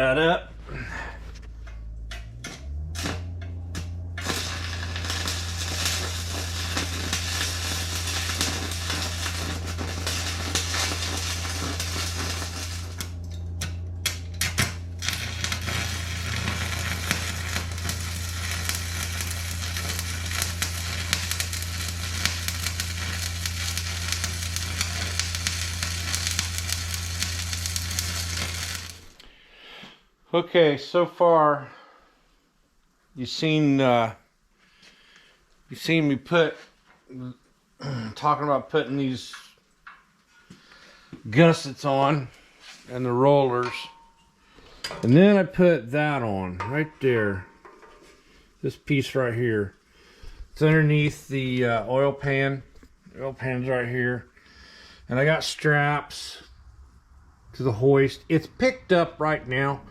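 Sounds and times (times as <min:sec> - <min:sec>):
welding arc crackling: 0:00.0 - 0:29.3
low welder hum: 0:00.0 - 0:29.5.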